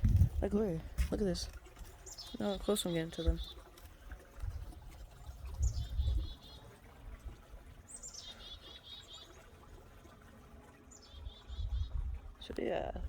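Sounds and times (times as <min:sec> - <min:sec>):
chickadee calling: 0:02.1 - 0:03.6, 0:07.9 - 0:09.4.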